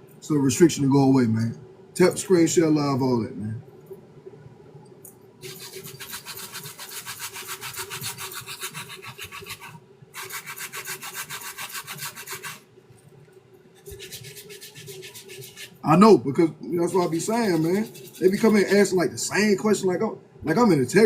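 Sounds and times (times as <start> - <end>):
rubbing strokes on a sneaker: 5.4 - 12.6, 13.8 - 15.8, 16.8 - 18.8.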